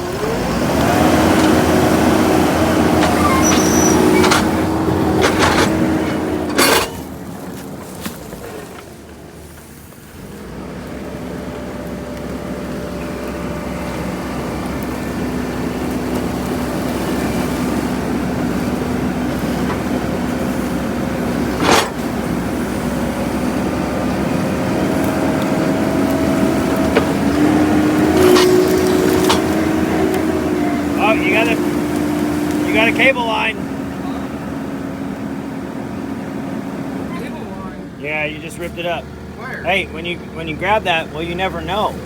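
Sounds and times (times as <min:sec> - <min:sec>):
engine running: 0:00.0 - 0:42.0.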